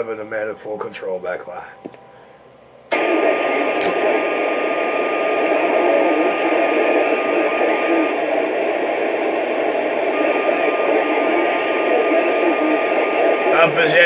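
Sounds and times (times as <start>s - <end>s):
radio static hiss: 2.9s - 14.0s.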